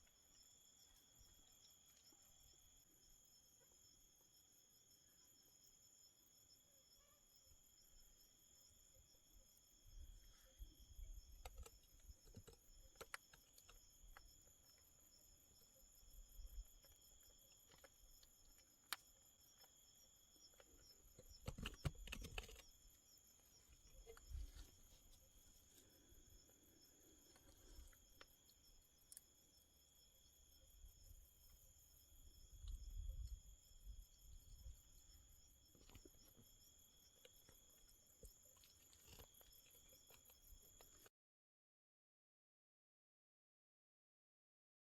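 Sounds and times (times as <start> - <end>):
high insect trill: 0.0 - 41.1
faint small clicks: 11.3 - 14.8
faint clicks and rustles: 20.4 - 29.2.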